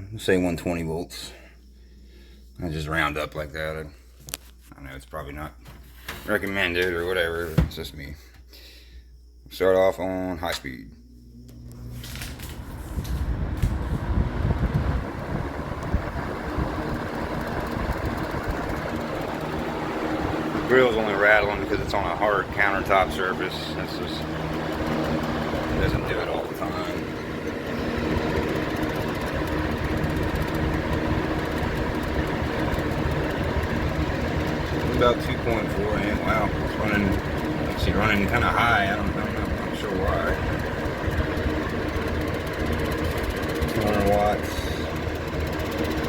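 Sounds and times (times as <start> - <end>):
fan motor running: 0.2 - 4.7, 5.3 - 9.4, 10.0 - 46.0
fan grill rattling: 12.0 - 46.0.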